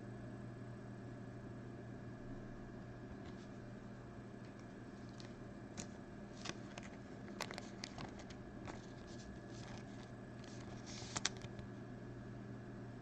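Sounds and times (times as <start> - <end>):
low electrical hum: 0.0 - 13.0
cards clicking and rustling: 4.4 - 11.7.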